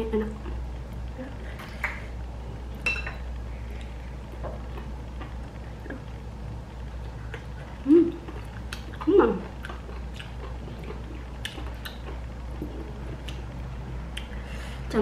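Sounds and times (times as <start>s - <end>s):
person chewing and smacking: 6.9s - 14.4s.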